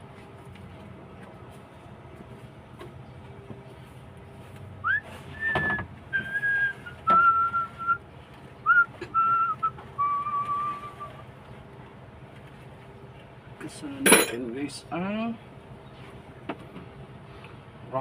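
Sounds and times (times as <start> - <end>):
person whistling a tune: 4.8 - 8.0, 8.6 - 11.2.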